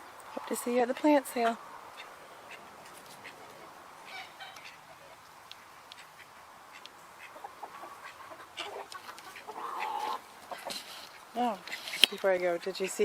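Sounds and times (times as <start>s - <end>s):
poultry chirps and clucks: 0.0s - 13.0s.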